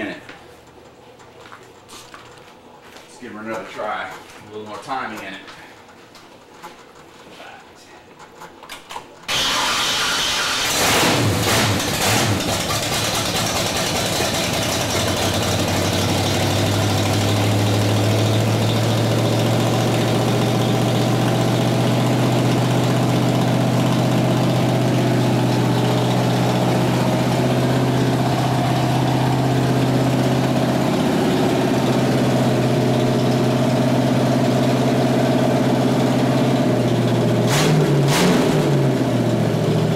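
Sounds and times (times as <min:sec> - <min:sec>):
engine starting and idling: 0:09.3 - 0:39.9.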